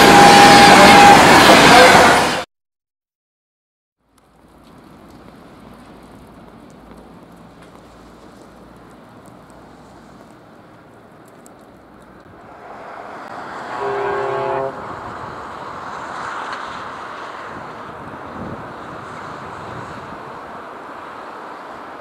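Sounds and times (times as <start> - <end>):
locomotive horn blast: 0.0 - 2.4, 13.4 - 15.2
train rumbling past: 0.0 - 2.4, 12.1 - 22.0.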